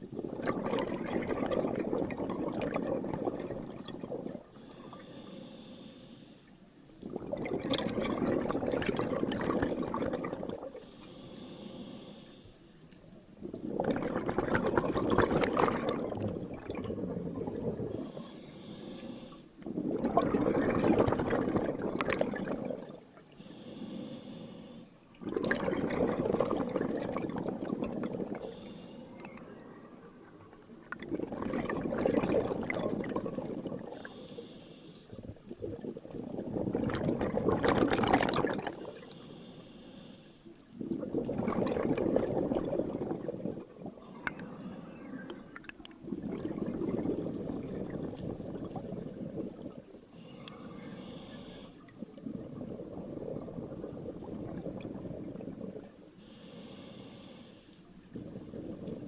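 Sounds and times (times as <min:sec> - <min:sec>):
exhaled air bubbling: 0:00.0 - 0:05.8, 0:06.9 - 0:12.2, 0:12.8 - 0:39.3, 0:40.4 - 0:59.0
regulator hiss on inhale: 0:04.5 - 0:06.9, 0:10.8 - 0:13.0, 0:17.9 - 0:19.7, 0:23.3 - 0:25.0, 0:28.4 - 0:30.6, 0:33.8 - 0:35.3, 0:38.7 - 0:40.7, 0:43.9 - 0:45.9, 0:50.0 - 0:52.0, 0:56.1 - 0:59.0.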